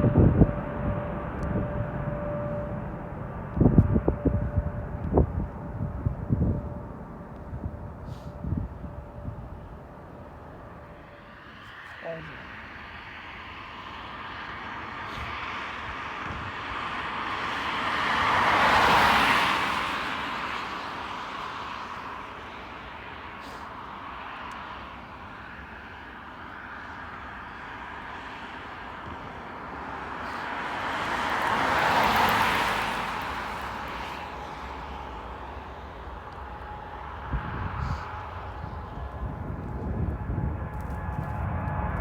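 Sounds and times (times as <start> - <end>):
faint steady whine: 0.0 - 18.6, 32.9 - 42.0
outdoor rumble: 0.0 - 42.0
vehicles passing by: 0.0 - 42.0.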